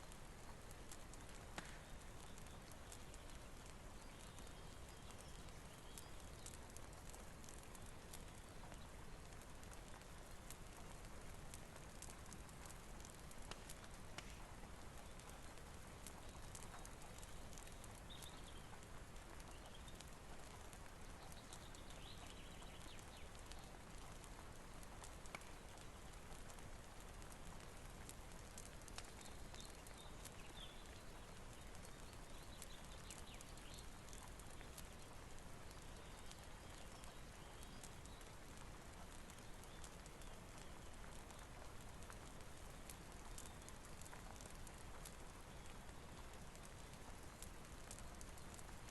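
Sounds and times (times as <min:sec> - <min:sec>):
faint rain hiss: 0:00.0 - 0:48.9
fireplace crackles: 0:00.0 - 0:48.9.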